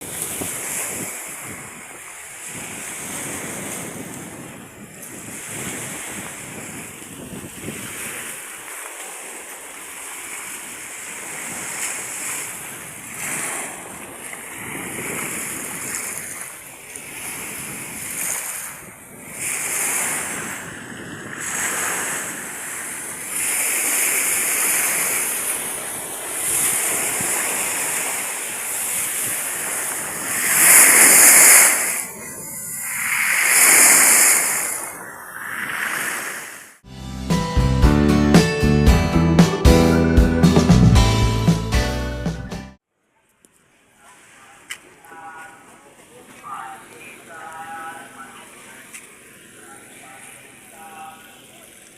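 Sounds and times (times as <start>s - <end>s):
wind gusting on microphone: 0.0s - 8.6s, 10.4s - 36.8s
sea waves breaking: 0.0s - 36.9s, 43.6s - 51.9s.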